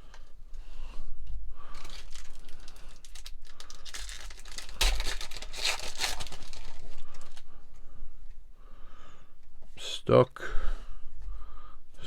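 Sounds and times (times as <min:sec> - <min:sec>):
plastic wrapper torn and crinkled: 0:01.8 - 0:07.5.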